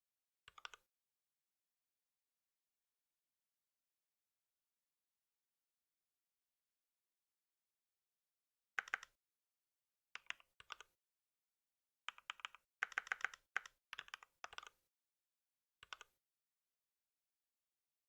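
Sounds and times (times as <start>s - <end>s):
typing on a computer keyboard: 0.5s - 0.8s, 8.8s - 9.2s, 10.2s - 10.9s, 12.1s - 14.8s, 15.8s - 16.2s.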